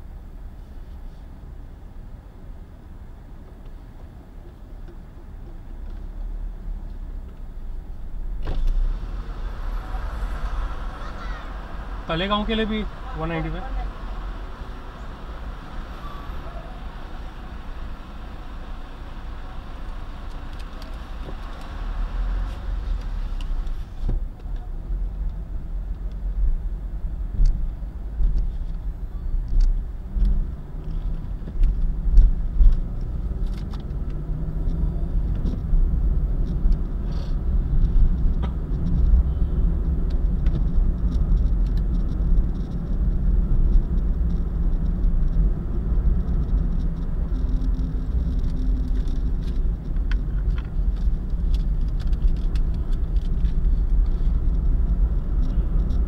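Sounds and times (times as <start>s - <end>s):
road and engine rumble: 0.0s - 56.0s
faint clicks and rattles: 39.8s - 56.0s.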